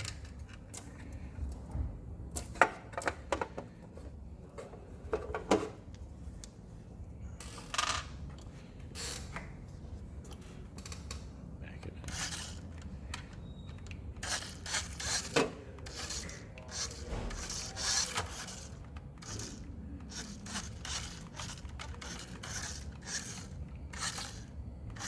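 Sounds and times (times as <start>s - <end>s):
toy car motor whirring: 12.0s - 25.0s.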